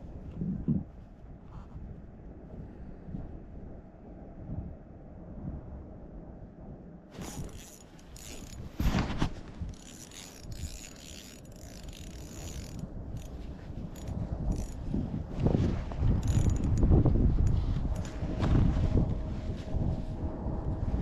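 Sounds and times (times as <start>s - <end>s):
fishing reel ratcheting: 7.2s - 8.8s, 9.7s - 14.8s, 16.2s - 18.1s
handling noise: 7.2s - 14.8s.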